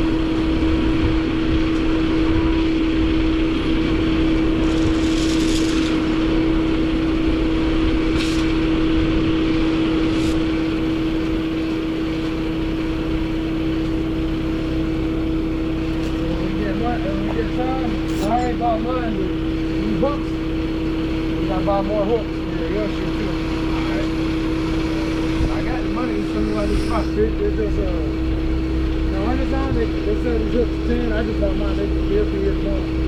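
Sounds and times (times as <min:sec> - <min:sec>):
vehicle engine running: 0:00.0 - 0:33.0
short hisses: 0:24.9 - 0:27.4.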